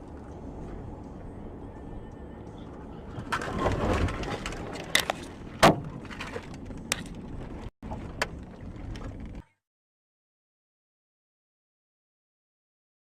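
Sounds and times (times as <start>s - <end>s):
car driving noise: 0.0s - 9.6s.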